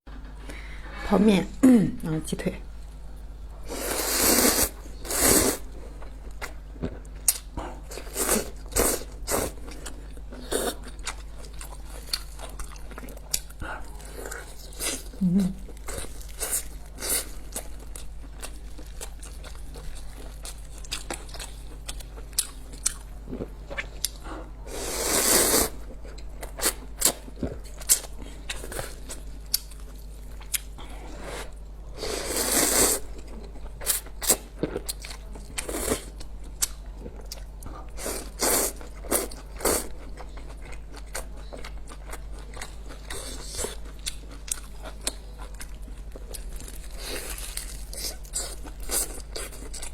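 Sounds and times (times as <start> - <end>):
chewing and biting food: 9.6 - 14.8, 15.8 - 24.2, 38.7 - 49.9.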